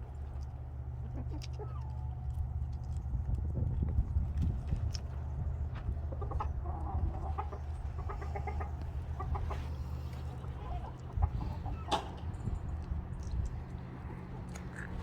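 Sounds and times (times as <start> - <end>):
steady low rumble: 0.0 - 15.0
chickens clucking: 0.3 - 2.2, 4.9 - 15.0.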